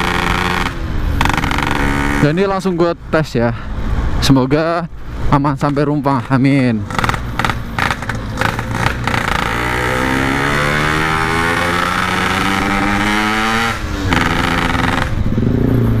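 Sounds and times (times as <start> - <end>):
two-stroke motorcycle accelerating: 0.0 - 2.7, 6.8 - 16.0.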